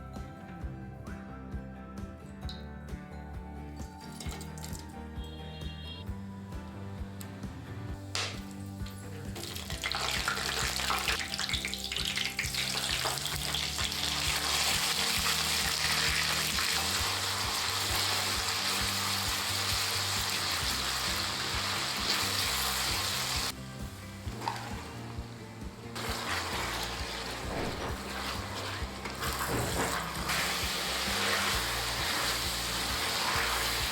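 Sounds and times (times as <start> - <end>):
food sizzling in hot oil: 8.2 - 33.9.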